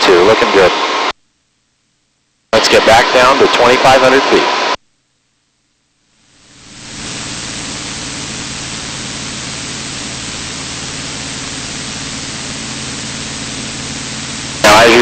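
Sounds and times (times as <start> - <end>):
small plane engine and propeller drone: 6.6 - 15.0.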